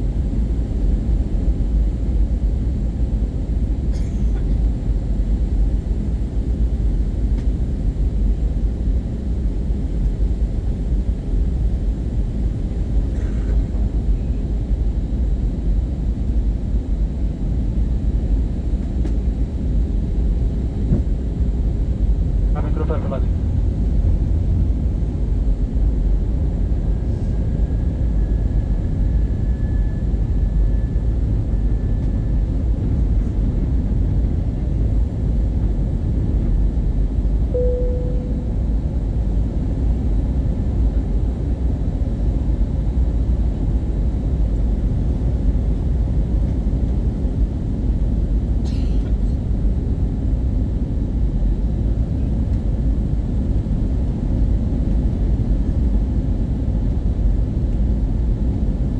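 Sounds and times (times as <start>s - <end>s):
airplane cabin rumble: 0.0s - 58.9s
faint tone: 37.5s - 38.7s.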